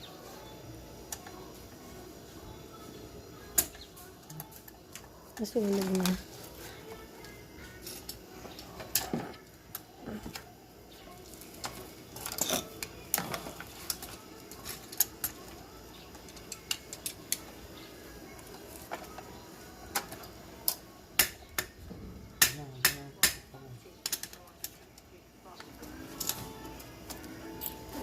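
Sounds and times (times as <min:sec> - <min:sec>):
small metal objects clinking: 0:11.3 - 0:15.5.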